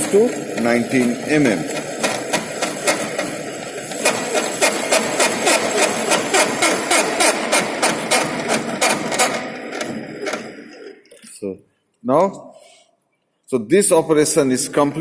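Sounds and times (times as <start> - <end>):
lathe mechanical rattle: 0.0 - 11.0.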